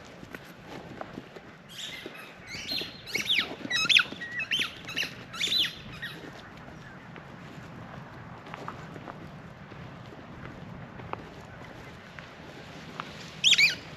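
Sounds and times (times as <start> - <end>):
songbird chirping and whistling: 1.7 - 7.6, 13.4 - 13.9.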